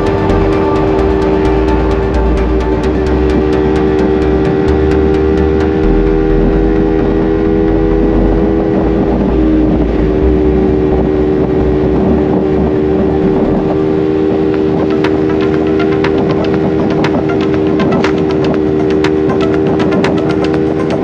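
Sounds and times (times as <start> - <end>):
motorcycle engine running: 0.0 - 21.0
wind and road noise: 4.0 - 21.0.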